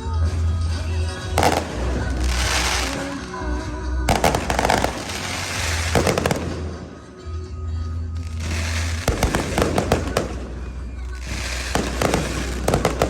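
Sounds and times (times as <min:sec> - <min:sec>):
fireworks crackling and popping: 0:00.3 - 0:07.4, 0:08.1 - 0:13.0.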